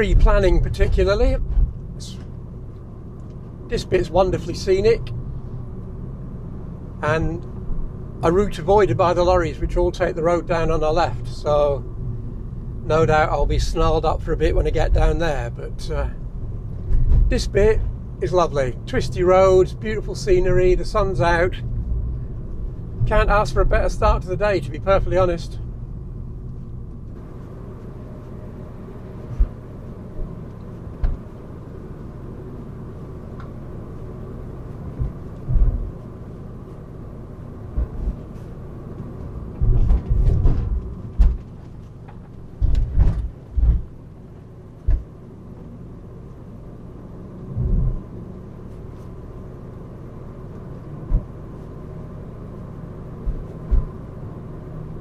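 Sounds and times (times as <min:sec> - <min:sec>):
engine and road rumble: 0:00.0 - 0:55.0
low thumps and knocks: 0:16.8 - 0:18.0, 0:29.2 - 0:31.3, 0:34.9 - 0:36.0, 0:37.7 - 0:38.4, 0:39.0 - 0:44.0, 0:44.8 - 0:45.2, 0:47.5 - 0:48.0, 0:51.0 - 0:51.4, 0:53.2 - 0:54.1.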